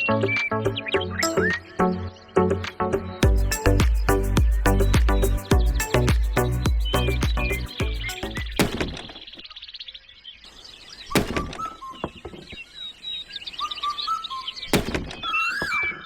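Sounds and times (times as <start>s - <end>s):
birds chirping and trilling: 0.0s - 16.0s
sharp knocks: 7.3s - 9.1s.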